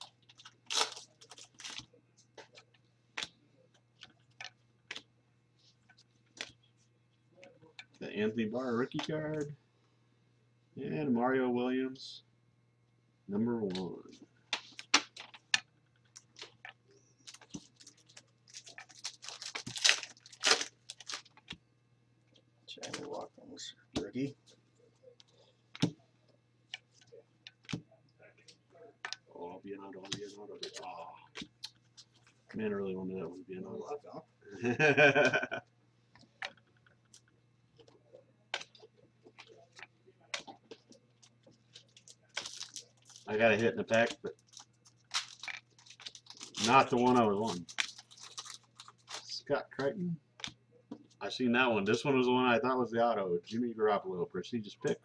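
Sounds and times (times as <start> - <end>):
foil wrapper crinkling: 0.0 - 2.6, 17.2 - 21.6, 38.6 - 49.5
faint low hum: 0.0 - 55.0.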